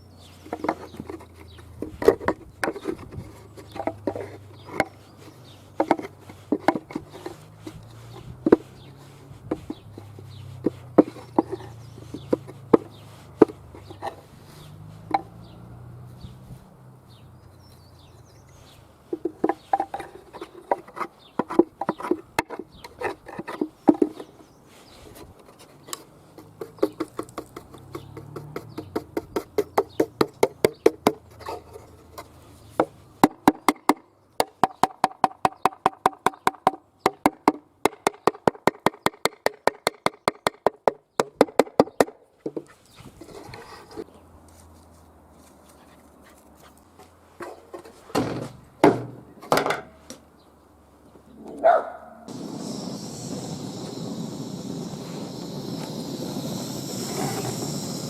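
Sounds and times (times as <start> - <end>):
knocking and scraping on wood: 0.4 - 14.3, 15.0 - 15.4, 19.1 - 24.5, 25.2 - 39.0.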